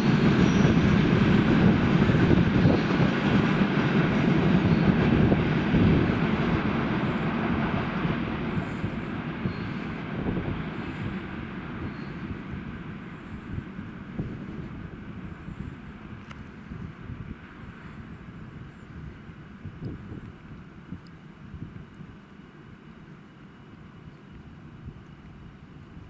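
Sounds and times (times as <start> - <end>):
freight train rolling on rails: 0.0 - 18.6.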